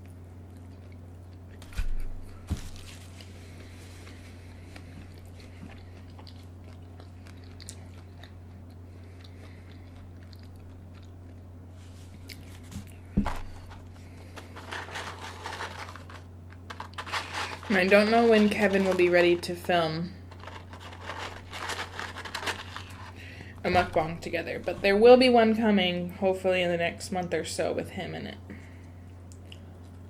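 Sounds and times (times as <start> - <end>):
biting and chewing food: 0.0 - 23.5
steady low hum: 0.0 - 30.0.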